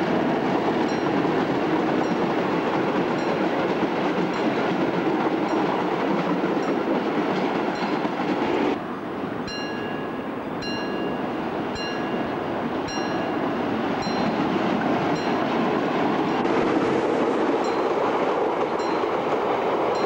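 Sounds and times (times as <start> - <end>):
diesel locomotive running: 0.0 - 20.0
level-crossing warning bell: 0.8 - 7.0, 7.7 - 14.6, 15.2 - 15.6, 17.6 - 20.0.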